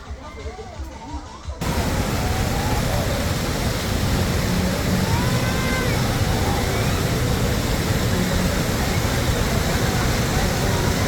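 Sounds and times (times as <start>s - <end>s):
spring water rushing: 1.6s - 11.0s.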